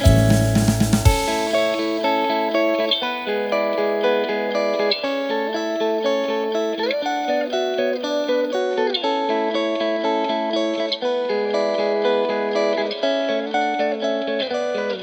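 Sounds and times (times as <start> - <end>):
guitar playing held notes: 0.0 - 9.4.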